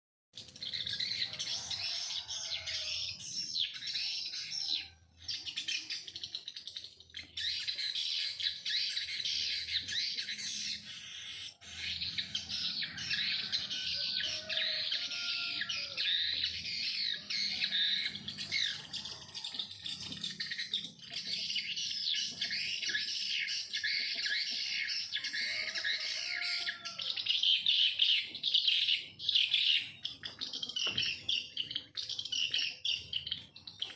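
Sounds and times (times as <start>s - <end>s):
small birds chirping and twittering: 0.4s - 33.9s.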